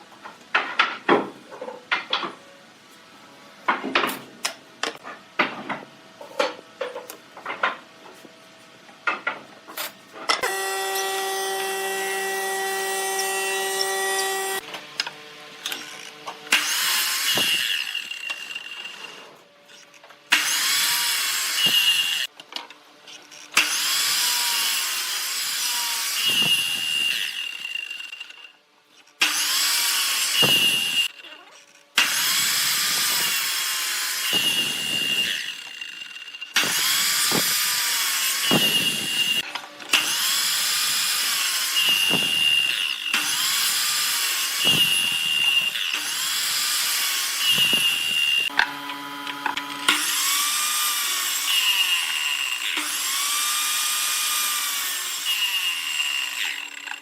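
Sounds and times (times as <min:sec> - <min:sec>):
power tool running: 0:10.4 - 0:19.3, 0:20.3 - 0:22.3, 0:23.5 - 0:28.5, 0:29.2 - 0:31.2, 0:32.0 - 0:57.0.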